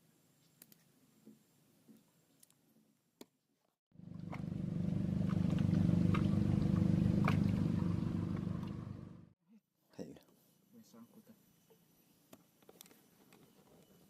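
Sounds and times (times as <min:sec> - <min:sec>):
motorboat engine passing: 0:04.0 - 0:09.4.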